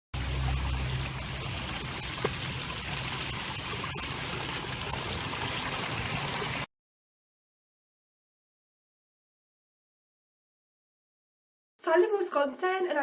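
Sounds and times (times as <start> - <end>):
water rushing in a stream: 0.2 - 6.7.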